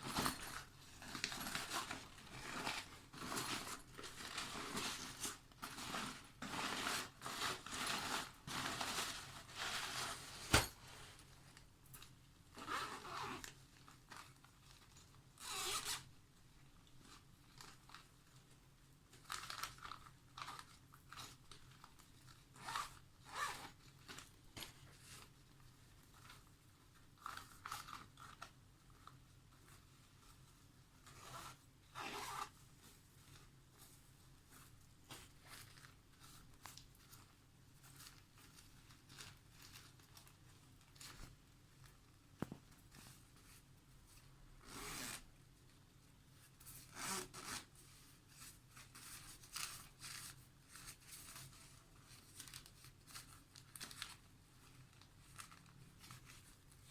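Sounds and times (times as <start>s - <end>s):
zippers pulled open and shut: 12.6s - 13.5s, 15.4s - 16.1s, 22.6s - 23.8s, 31.2s - 32.5s, 44.6s - 45.3s, 46.9s - 47.7s.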